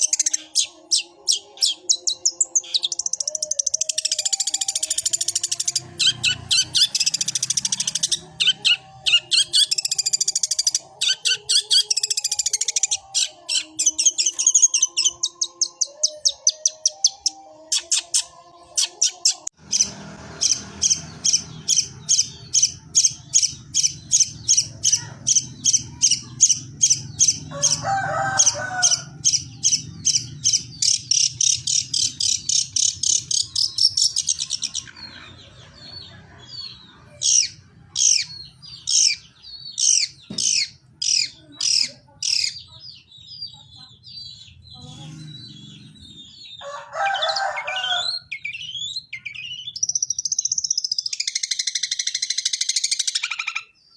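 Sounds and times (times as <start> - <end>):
bird high repeated chips: 0.0 - 34.9.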